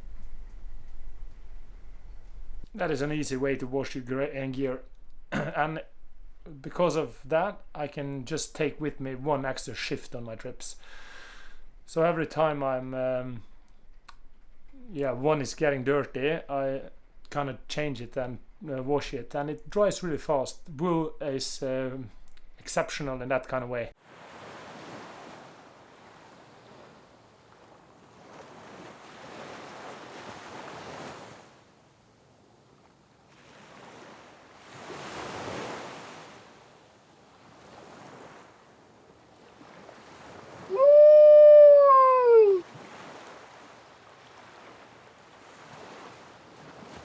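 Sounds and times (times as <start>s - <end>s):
wind or surf noise: 0.0s - 13.6s, 14.6s - 31.8s, 33.2s - 47.0s
loud drawn-out call: 40.7s - 42.6s.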